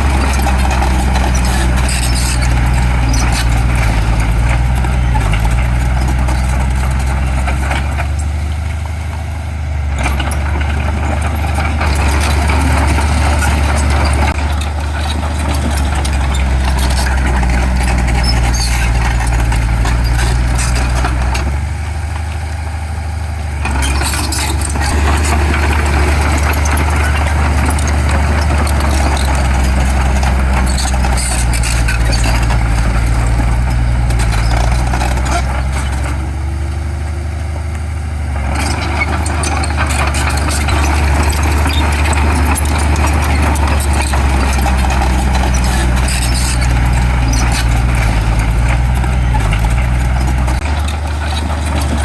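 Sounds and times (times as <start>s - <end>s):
heavy diesel machinery running: 0.0s - 52.0s
metal clanks and rattles: 23.6s - 36.2s, 38.4s - 52.0s.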